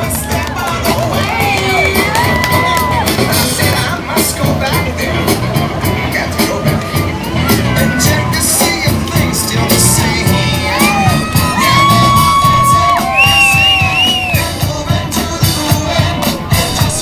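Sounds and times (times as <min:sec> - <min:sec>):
crowd noise: 0:00.0 - 0:17.0
loud music with steady beat: 0:00.0 - 0:17.0.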